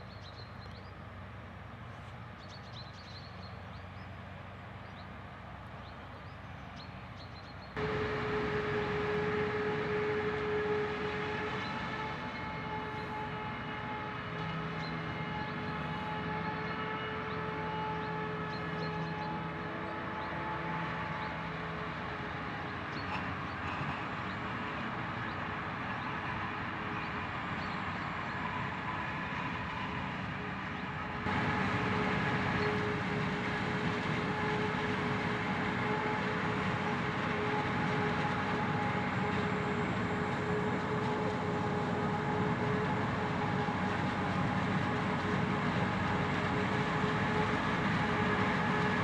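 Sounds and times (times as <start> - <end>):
harvest machinery running: 7.8 - 18.6, 30.5 - 49.0
constant machine whine: 7.8 - 49.0.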